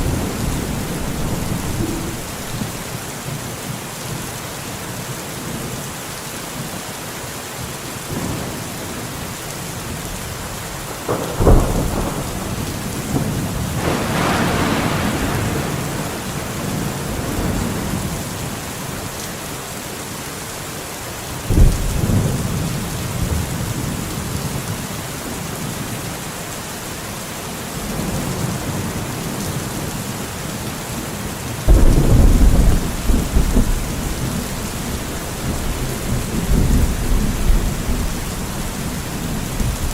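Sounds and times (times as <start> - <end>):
thunder claps and rumble: 0.0 - 3.0, 10.8 - 19.2, 21.5 - 25.5, 31.6 - 39.9
steady rain: 0.0 - 39.9.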